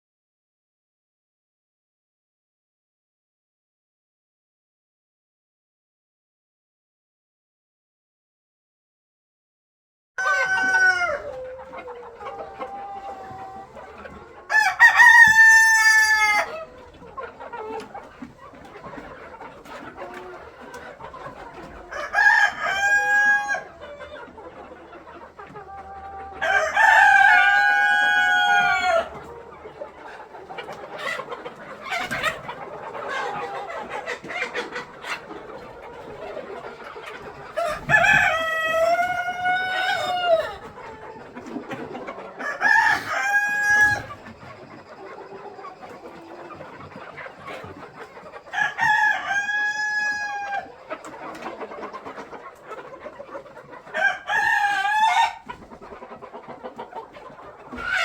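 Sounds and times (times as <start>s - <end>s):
roosters crowing: 10.2s - 12.0s, 14.4s - 16.8s, 21.8s - 24.0s, 25.9s - 29.3s, 37.6s - 40.6s, 42.4s - 44.2s, 48.6s - 50.7s, 54.0s - 55.4s
chickens clucking: 10.2s - 58.0s.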